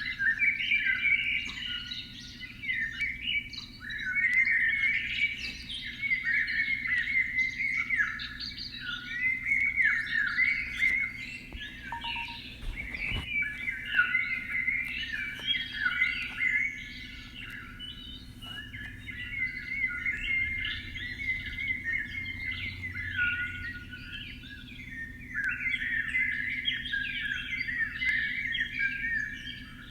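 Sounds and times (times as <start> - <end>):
birds chirping in chorus: 0.0 - 29.9
faint low hum: 8.8 - 24.5.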